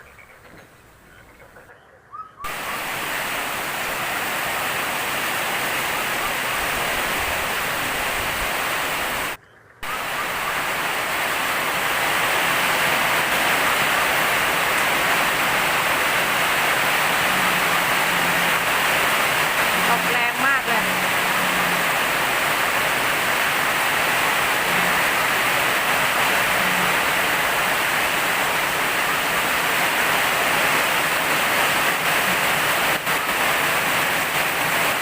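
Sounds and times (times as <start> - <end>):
faint bird chirps: 0.0 - 2.5
heavy rain pouring: 2.4 - 35.0.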